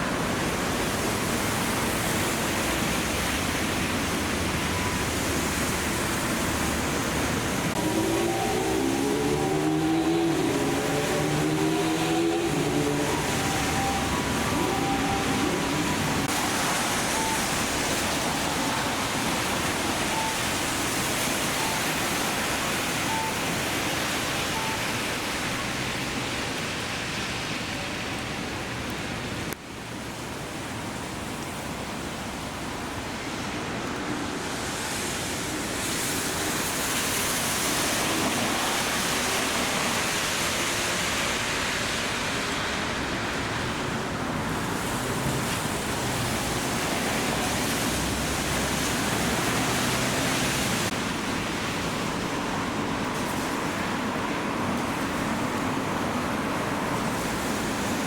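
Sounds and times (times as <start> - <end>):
heavy rain falling: 0.0 - 58.0
traffic on wet road: 0.0 - 58.0
faint short beeps: 23.1 - 23.4, 24.6 - 24.9.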